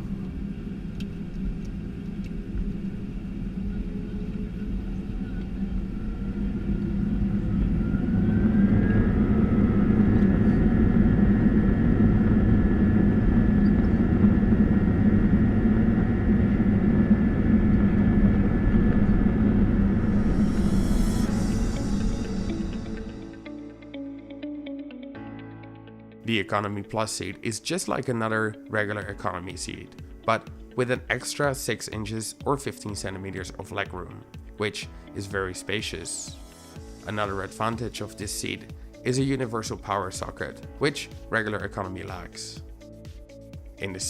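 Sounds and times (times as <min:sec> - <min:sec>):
jet engines spooling up: 0:00.0 - 0:24.3.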